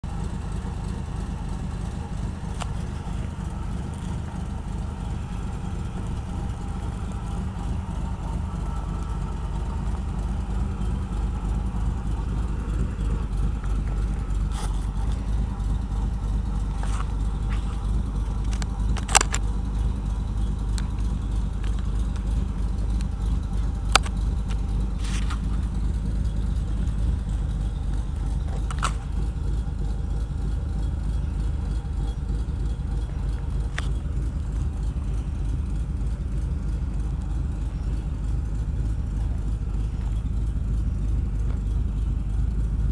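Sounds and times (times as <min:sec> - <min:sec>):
truck engine rumbling: 0:00.0 - 0:42.9
sharp clicks: 0:18.4 - 0:19.6.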